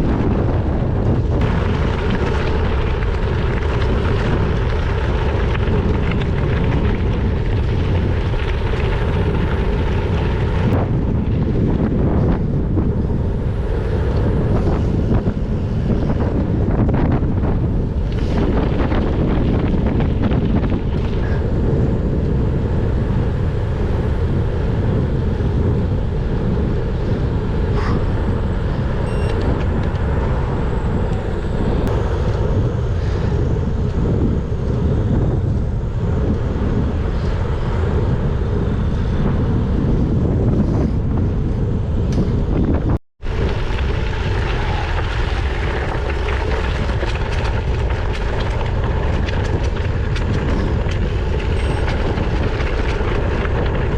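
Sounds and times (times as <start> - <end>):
tyres rolling on road: 0.0 - 26.8, 43.2 - 53.9
wind rush on microphone: 0.0 - 53.9.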